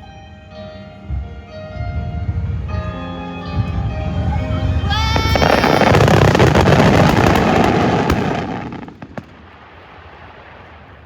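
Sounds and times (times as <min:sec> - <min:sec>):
fireworks crackling and banging: 0:03.6 - 0:11.0.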